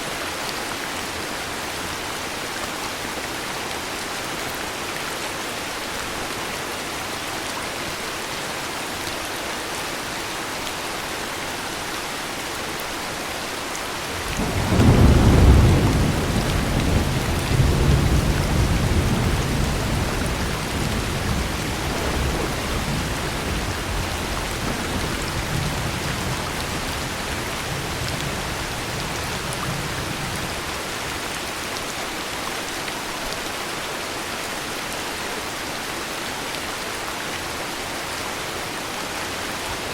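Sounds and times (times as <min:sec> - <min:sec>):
heavy rain: 0:00.0 - 0:39.9
thunder rumbling: 0:14.2 - 0:30.6.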